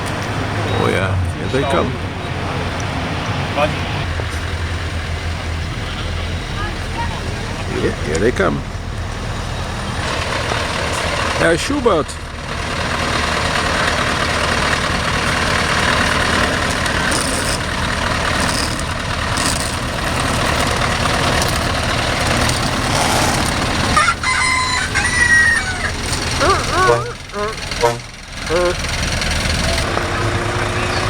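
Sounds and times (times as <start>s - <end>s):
heavy trucks driving past: 0.0s - 31.0s
truck horn: 15.9s - 31.0s.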